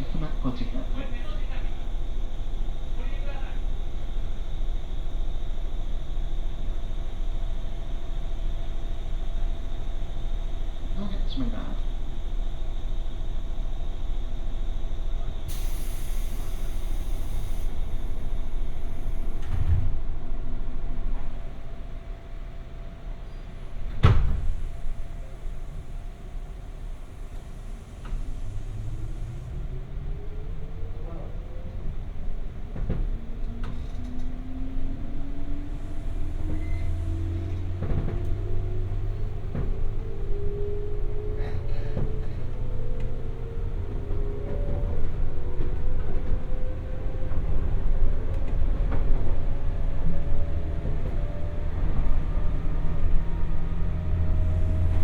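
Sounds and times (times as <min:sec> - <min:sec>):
train equipment low rumble: 0:00.0 - 0:55.0
wheels clacking on track: 0:35.3 - 0:40.2.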